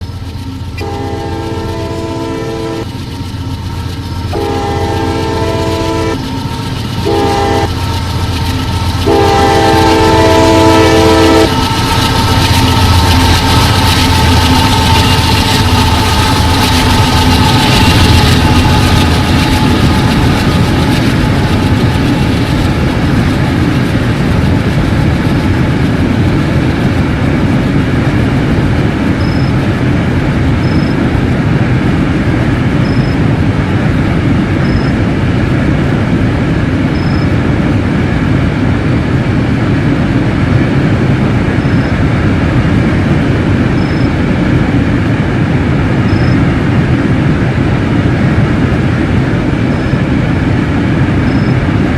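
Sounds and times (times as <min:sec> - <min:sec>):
freight train wheels rumbling: 0:00.0 - 0:51.9
train horn chord: 0:00.8 - 0:02.9, 0:04.3 - 0:06.2, 0:07.0 - 0:07.8, 0:09.0 - 0:11.7.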